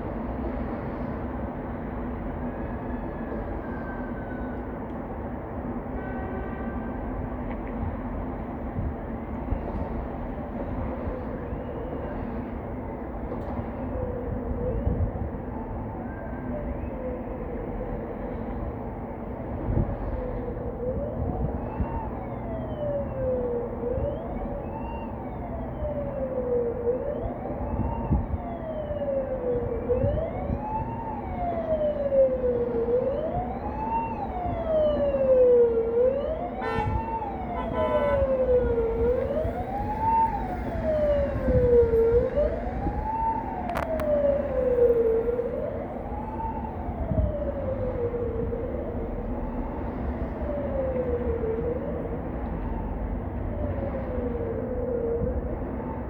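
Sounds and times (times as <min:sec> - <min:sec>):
emergency vehicle siren wailing: 0:00.0 - 0:56.0
low rumble of road traffic: 0:00.0 - 0:56.0.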